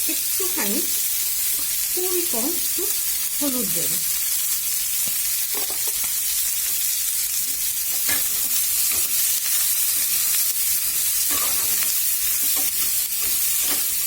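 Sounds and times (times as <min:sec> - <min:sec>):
chicken and onions sizzling in a pan: 0:00.0 - 0:14.0
spoon scraping a pan: 0:05.0 - 0:06.8, 0:07.4 - 0:14.0.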